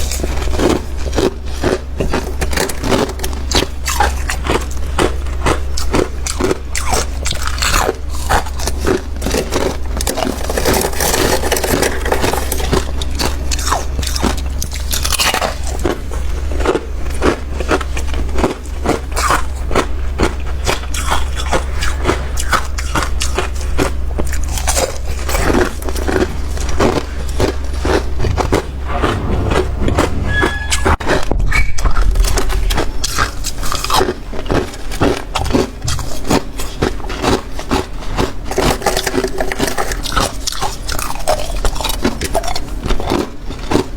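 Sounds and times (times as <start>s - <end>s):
crunchy biting and chewing: 0.0s - 43.9s
low steady hum: 0.0s - 43.9s.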